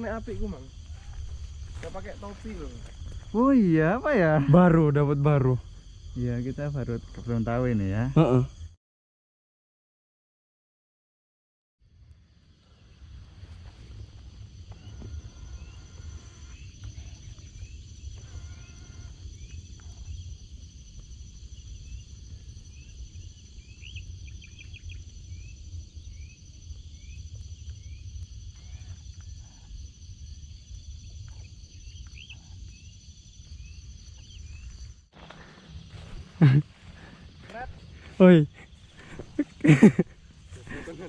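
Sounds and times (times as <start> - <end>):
low wind rumble: 0.0 - 8.1, 12.1 - 41.0
high-pitched insect drone: 0.0 - 8.7, 12.7 - 41.0
bird chirping: 23.6 - 25.4.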